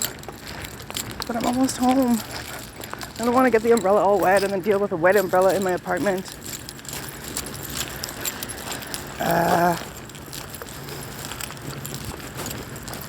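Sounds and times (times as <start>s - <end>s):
person humming: 9.2s - 9.9s.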